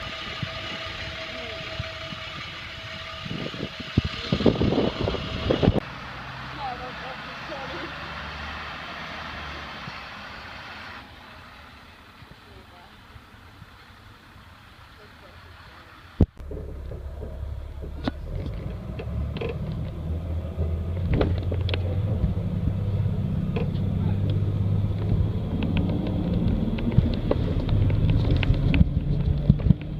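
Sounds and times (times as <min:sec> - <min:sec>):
diesel engine idling: 0:00.0 - 0:29.9.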